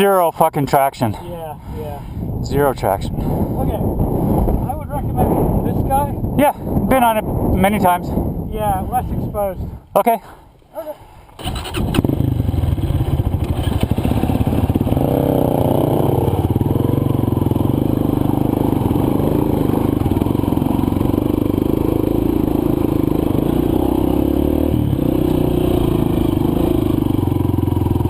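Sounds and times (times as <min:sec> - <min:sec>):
dirt bike engine idling: 0:11.5 - 0:28.0.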